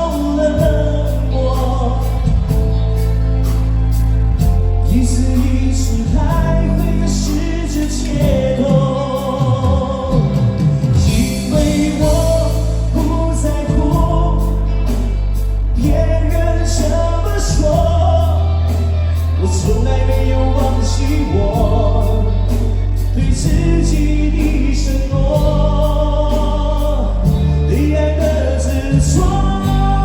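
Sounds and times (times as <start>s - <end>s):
man singing live pop music: 0.0s - 30.0s.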